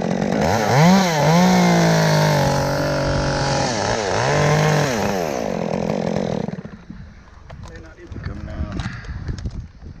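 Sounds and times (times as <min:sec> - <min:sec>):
chainsaw revving: 0:00.0 - 0:06.9.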